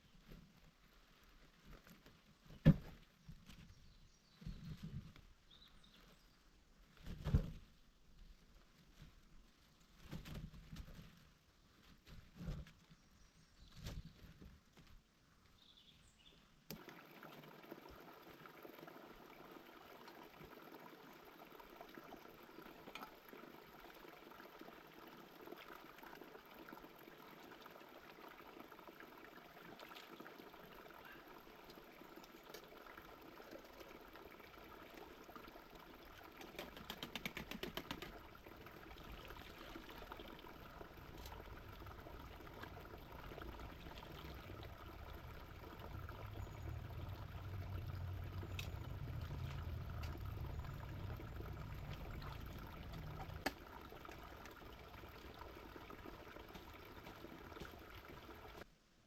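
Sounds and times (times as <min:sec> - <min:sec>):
water trickling and splashing: 0:16.7 - 0:58.7.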